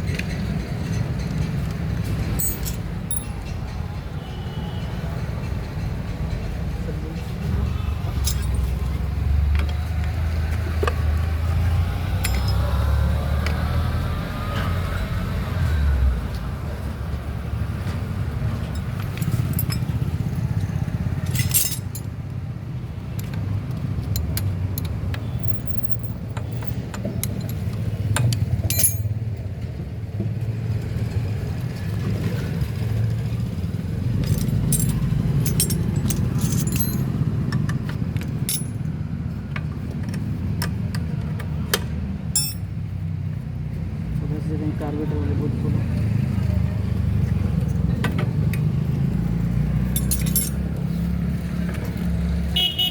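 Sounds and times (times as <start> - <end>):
metal spanners clinking: 2.2 - 3.8, 8.2 - 9.0, 12.2 - 12.7, 18.6 - 20.3, 21.2 - 22.2, 24.2 - 29.2, 34.1 - 37.6, 38.2 - 38.9, 42.3 - 42.7, 49.9 - 50.7.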